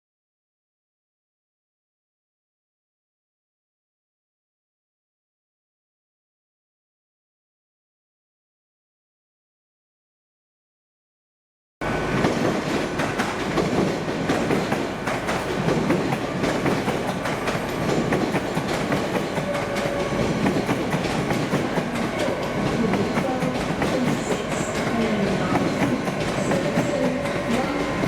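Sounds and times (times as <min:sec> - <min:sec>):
train wheels clicking over rails: 0:11.8 - 0:28.0.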